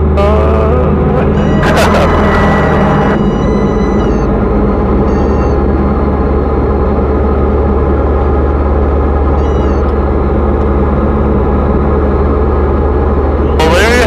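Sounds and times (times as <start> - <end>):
plane engine and propeller drone: 0.0 - 14.0
faint high-pitched tones: 1.3 - 6.4.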